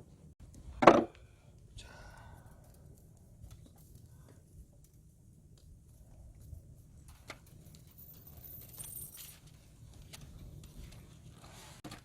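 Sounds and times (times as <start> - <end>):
small clicks and clinks: 7.1 - 11.0.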